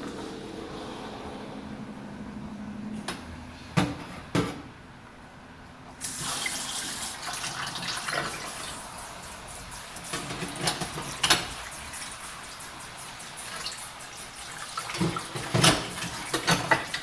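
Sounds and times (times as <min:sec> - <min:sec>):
tap water running into sink: 0:06.0 - 0:08.8, 0:09.4 - 0:17.0.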